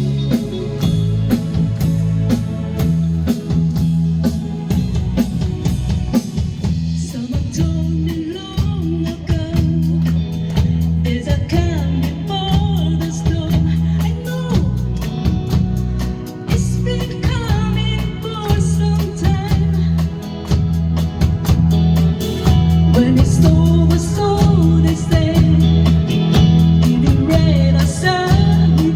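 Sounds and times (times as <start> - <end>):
live rock band playing: 0.0 - 28.9
person singing: 6.8 - 15.4, 16.2 - 20.4, 22.8 - 28.9.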